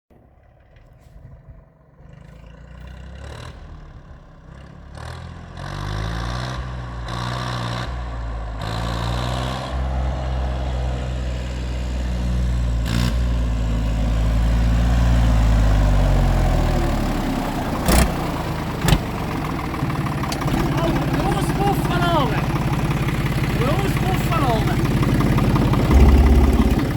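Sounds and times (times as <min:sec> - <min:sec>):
tractor diesel engine running: 0:10.8 - 0:26.9
sharp knock: 0:25.9 - 0:26.9.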